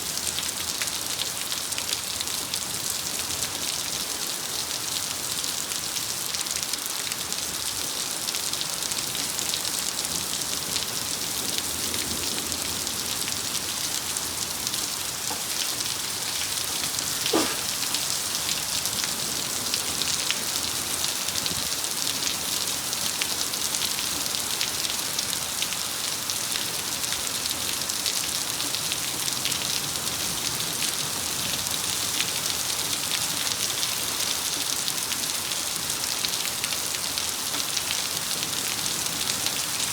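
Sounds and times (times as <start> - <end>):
heavy rain pouring: 0.1 - 39.9
short sharp knock: 17.3 - 17.7.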